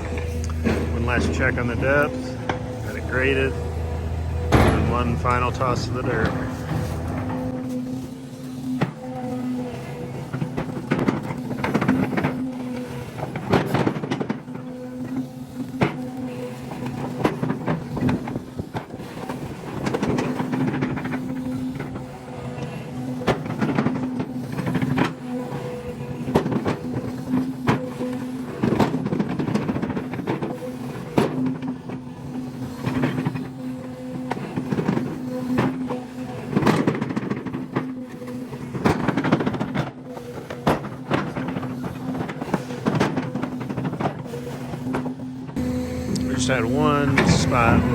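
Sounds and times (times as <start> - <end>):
metal knocks and clanks: 0.0 - 7.7
excavator engine and hydraulics hum: 0.0 - 47.9.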